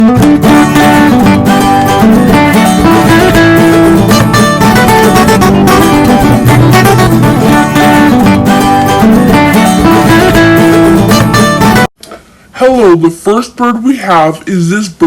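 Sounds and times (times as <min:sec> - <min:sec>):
acoustic guitar strumming: 0:00.0 - 0:11.9.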